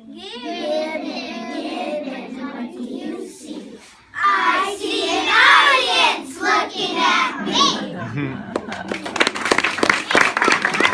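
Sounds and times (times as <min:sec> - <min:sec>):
children chanting: 0:00.0 - 0:08.0.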